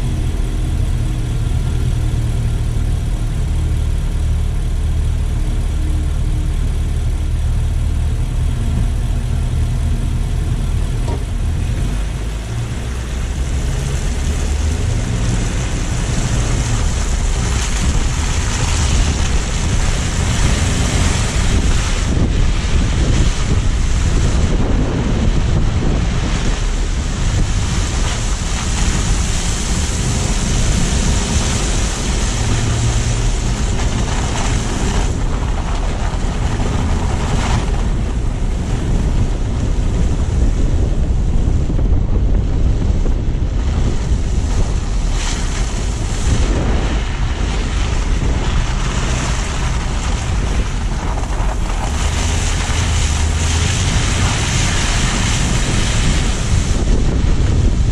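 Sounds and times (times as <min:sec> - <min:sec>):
road and tyre rumble: 0:00.0 - 0:57.9
wind buffeting microphone: 0:00.0 - 0:57.9.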